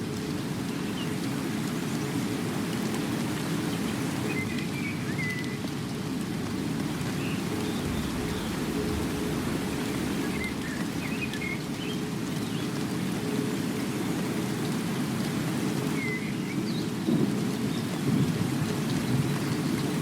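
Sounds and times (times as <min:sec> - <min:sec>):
steady rain: 0:00.0 - 0:20.0
rolling thunder: 0:07.6 - 0:11.8.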